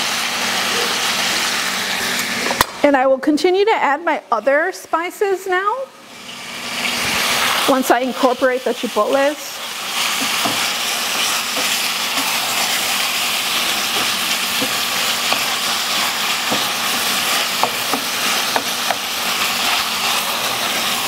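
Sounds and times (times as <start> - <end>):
meat sizzling in a pan: 0.0 - 2.6, 6.0 - 21.0
utensil scraping a pan: 9.6 - 21.0.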